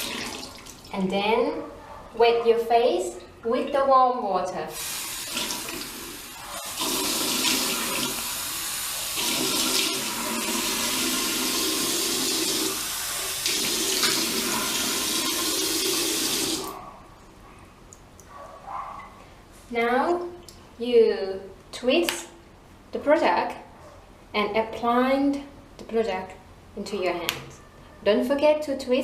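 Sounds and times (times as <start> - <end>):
tap water running into sink: 4.8 - 16.8.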